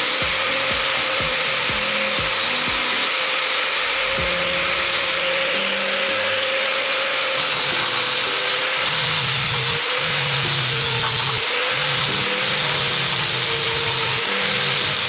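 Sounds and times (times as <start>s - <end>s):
power sander grinding: 0.0s - 15.0s.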